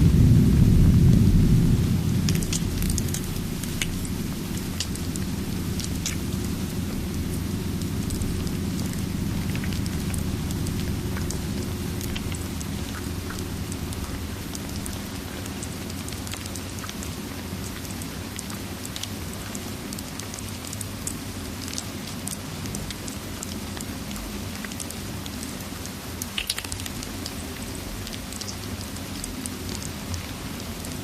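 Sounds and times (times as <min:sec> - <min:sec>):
wood fire crackling: 0:00.0 - 0:19.2
steady rain: 0:00.0 - 0:31.0.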